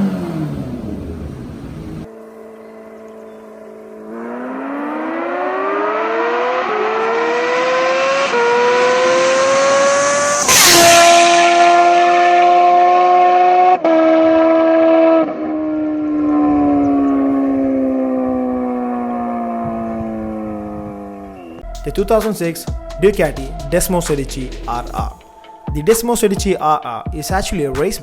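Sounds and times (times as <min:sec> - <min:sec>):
motorcycle passing rush: 0:00.0 - 0:21.6
motorcycle engine accelerating: 0:00.0 - 0:25.2.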